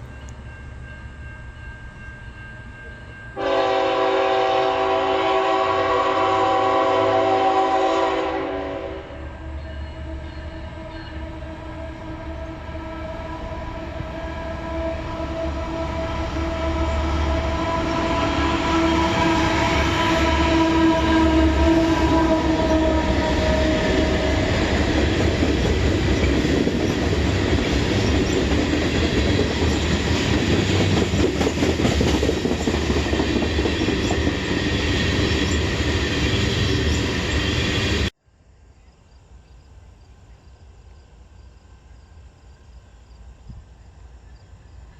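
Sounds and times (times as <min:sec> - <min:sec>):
train rumbling: 0:00.0 - 0:38.2
train horn blowing: 0:03.4 - 0:25.5
train wheels clattering on rails: 0:18.0 - 0:38.0.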